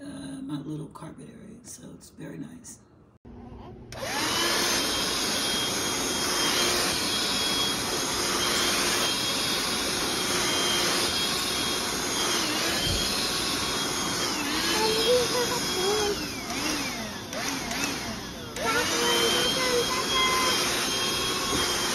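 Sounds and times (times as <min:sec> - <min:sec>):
handheld vacuum running: 0:03.9 - 0:21.9.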